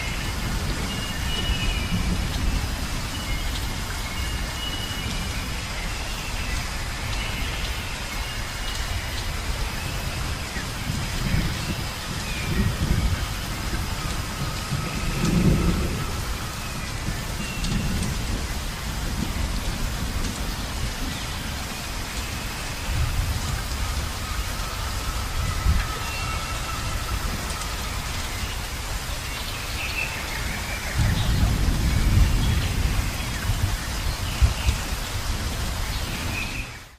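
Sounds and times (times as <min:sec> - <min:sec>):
steady rain: 0:00.0 - 0:36.9
thunder rolling: 0:10.8 - 0:21.1, 0:30.8 - 0:35.6.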